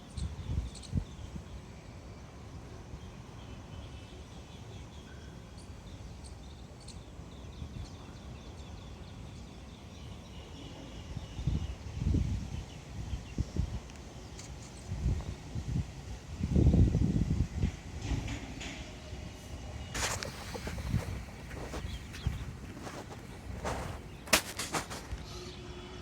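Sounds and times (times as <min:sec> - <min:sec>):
wind rumble on microphone: 0:00.1 - 0:01.5, 0:11.1 - 0:13.9, 0:14.9 - 0:18.6, 0:19.8 - 0:25.4
low wind buffets: 0:14.9 - 0:18.4, 0:19.6 - 0:25.4
small birds chirping: 0:19.9 - 0:25.6.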